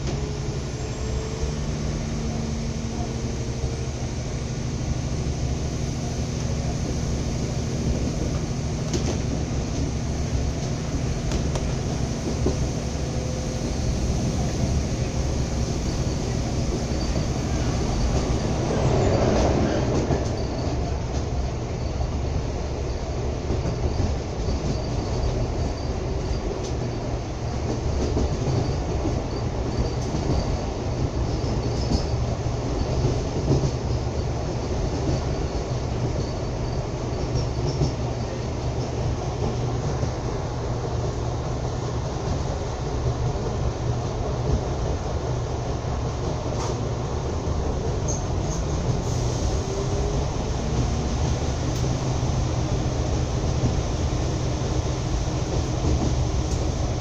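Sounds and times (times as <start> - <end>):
train wheels rumbling on rail: 0.0 - 57.0
faint rail clicks: 7.9 - 13.4, 26.2 - 29.2, 46.2 - 49.0, 55.5 - 56.8.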